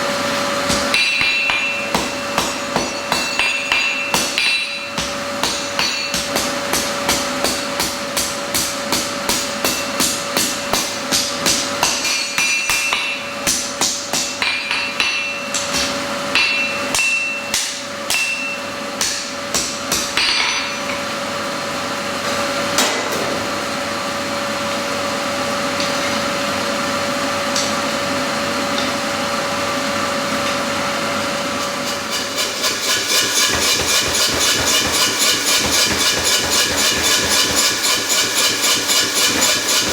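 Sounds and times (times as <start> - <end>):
hammer striking steel on anvil: 0.6 - 21.2, 31.6 - 39.9.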